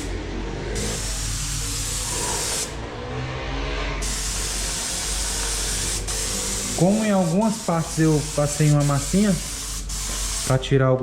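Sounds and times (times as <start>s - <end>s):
spray gun hissing: 0.7s - 2.8s, 4.0s - 10.7s.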